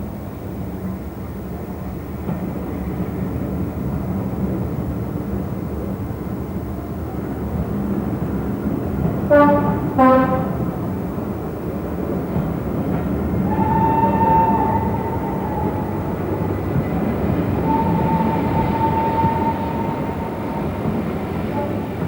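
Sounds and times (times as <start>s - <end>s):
train rumbling: 0.0s - 22.0s
two-note train horn: 9.3s - 10.9s, 13.5s - 16.0s, 17.6s - 21.8s.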